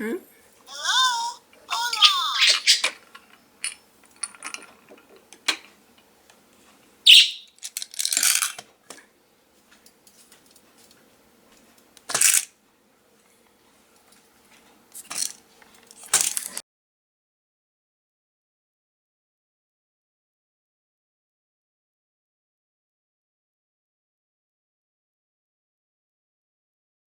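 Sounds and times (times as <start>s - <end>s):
high chirp: 1.7s - 2.9s, 7.1s - 7.5s.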